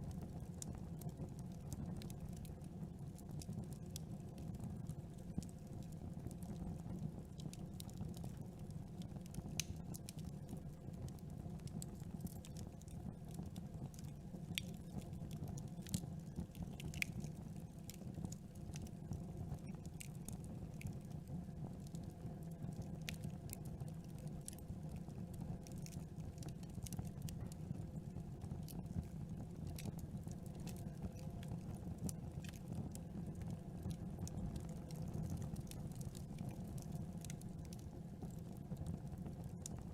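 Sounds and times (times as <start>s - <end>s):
campfire crackling: 0.1s - 39.9s
burning wood popping: 9.4s - 10.7s, 11.3s - 21.1s, 25.6s - 38.3s.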